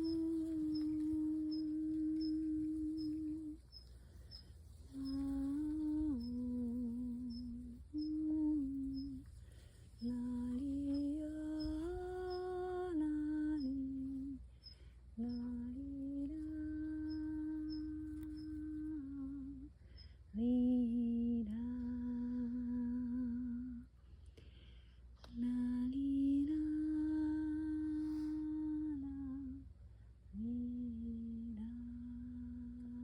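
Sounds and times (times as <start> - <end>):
woman humming: 0.0 - 9.4, 10.0 - 14.4, 15.2 - 19.7, 20.4 - 23.9, 30.4 - 33.0.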